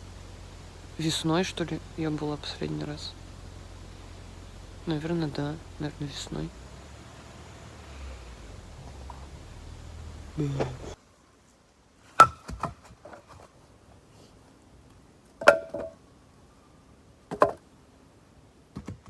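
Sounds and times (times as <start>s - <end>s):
axe splitting firewood: 10.4s - 11.0s, 12.2s - 13.0s.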